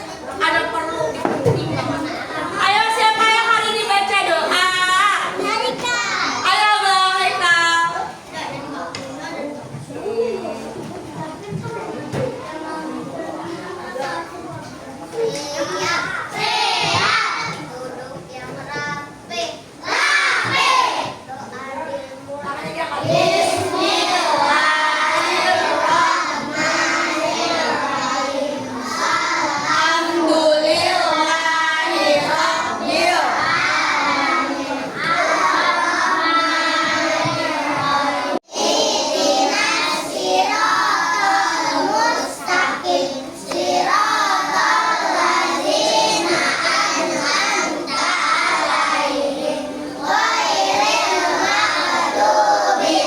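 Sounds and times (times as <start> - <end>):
child leading chant: 0.0 - 10.4, 11.1 - 53.0
children chanting together: 12.6 - 21.6, 22.9 - 53.0.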